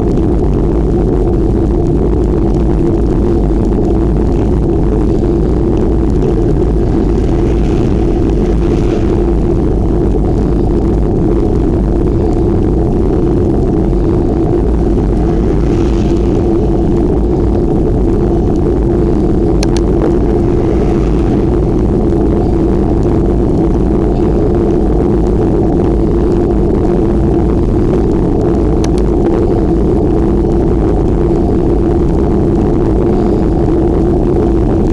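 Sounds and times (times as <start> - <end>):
wind rushing over microphone: 0.0 - 34.9.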